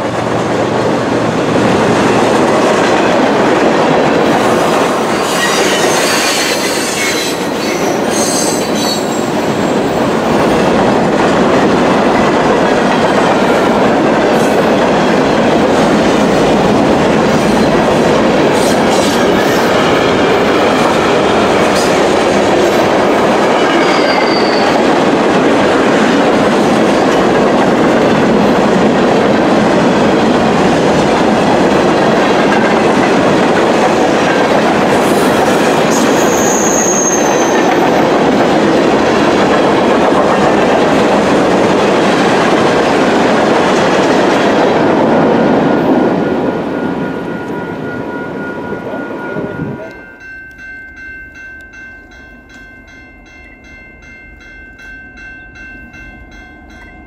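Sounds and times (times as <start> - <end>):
train cars clattering on rails: 0.0 - 46.7
high wheel squeals: 5.1 - 9.4, 23.6 - 24.8, 35.9 - 37.7.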